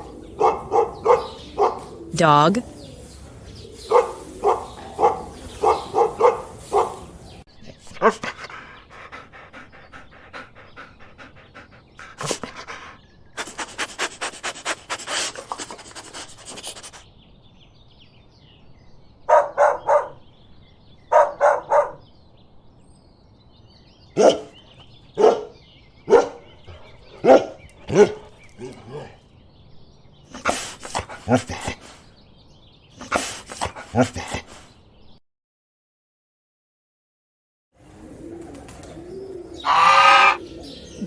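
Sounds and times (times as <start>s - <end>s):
dog yipping: 0.0s - 2.0s, 3.9s - 7.1s, 38.4s - 41.0s
dog barking: 0.0s - 2.1s, 3.8s - 7.4s, 19.3s - 20.2s, 21.1s - 22.0s, 24.2s - 24.6s, 25.2s - 28.2s, 38.4s - 41.0s
dog panting: 0.0s - 17.1s, 30.3s - 32.1s, 33.0s - 34.7s, 37.8s - 41.0s.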